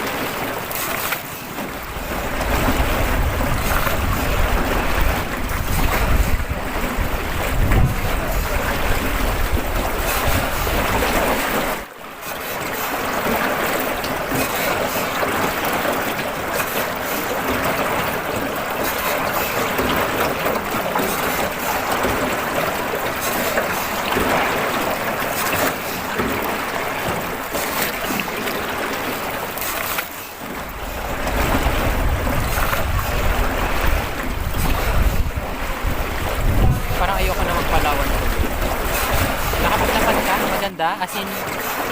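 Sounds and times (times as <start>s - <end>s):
wind buffeting microphone: 1.8s - 11.8s, 30.6s - 40.7s.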